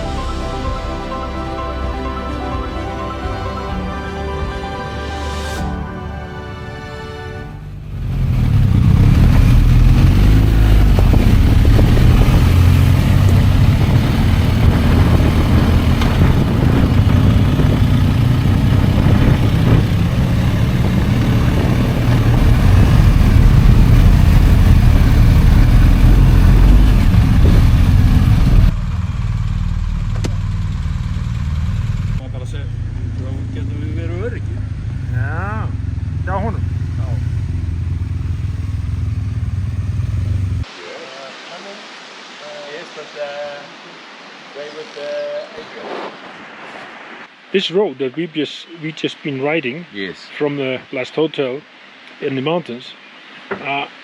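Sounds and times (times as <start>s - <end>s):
motorcycle engine rumbling: 0.0s - 4.9s, 7.4s - 40.7s
music: 0.0s - 7.8s.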